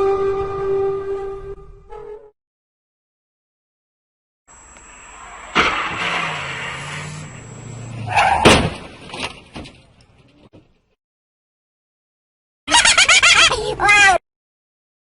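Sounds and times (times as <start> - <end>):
tire squeal: 4.5 - 8.8
road and engine noise: 4.5 - 11.0
loud crash impact: 5.2 - 7.4, 8.3 - 9.5.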